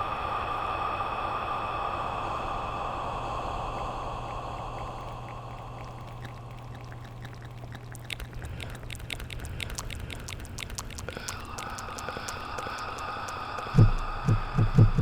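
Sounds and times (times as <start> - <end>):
low hum: 0.0 - 15.0
tongue and lip clicks: 3.7 - 15.0
steady hiss: 8.2 - 15.0.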